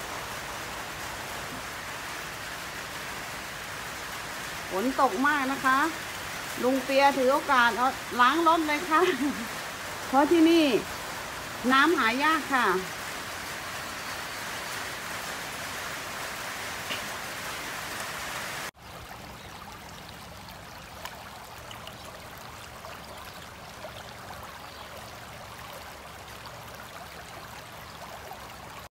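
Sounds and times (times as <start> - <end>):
heavy rain falling: 0.0 - 18.7
runoff water rushing in a channel: 0.0 - 28.9.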